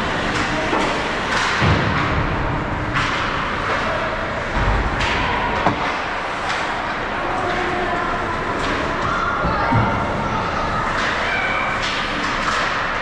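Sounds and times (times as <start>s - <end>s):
stick or puck knocks: 5.0s - 6.0s.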